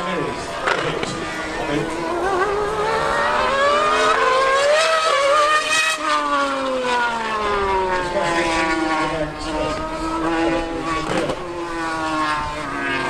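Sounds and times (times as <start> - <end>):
racing engine accelerating hard: 0.0 - 13.0.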